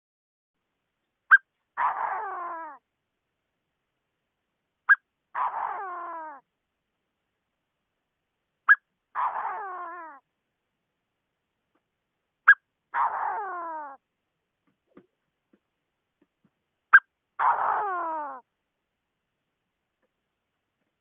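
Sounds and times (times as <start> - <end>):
bird calling harshly: 1.3 - 2.8, 4.9 - 6.4, 8.7 - 10.2, 12.5 - 14.0, 16.9 - 18.4.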